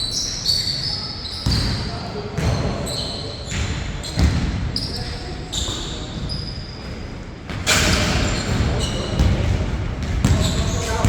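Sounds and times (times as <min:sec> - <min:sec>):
sneaker squeaks: 0:00.0 - 0:11.0
basketball bouncing: 0:04.2 - 0:04.6, 0:07.5 - 0:11.0.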